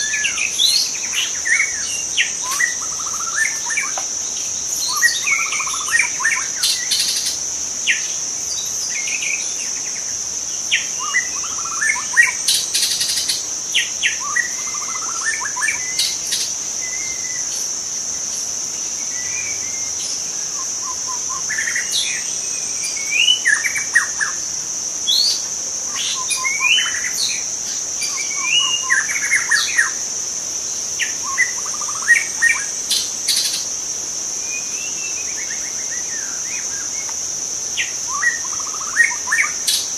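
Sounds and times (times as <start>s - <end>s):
bird singing whistles: 0.0s - 4.0s
high-pitched insect drone: 0.0s - 39.9s.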